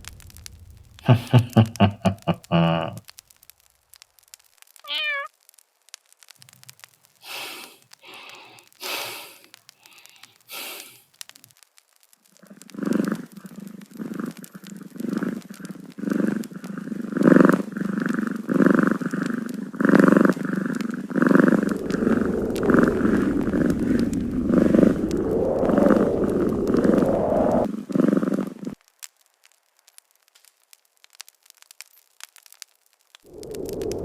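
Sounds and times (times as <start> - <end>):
cat purring: 12.6 - 28.8.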